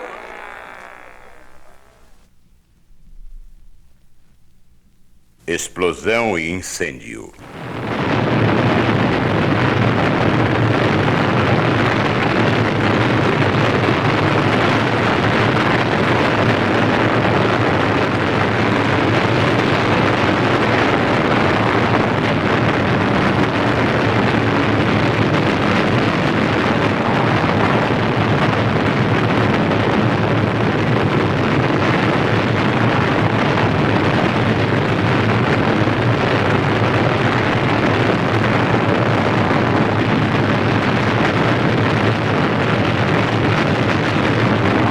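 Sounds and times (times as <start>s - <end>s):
large fire burning: 6.8s - 44.9s.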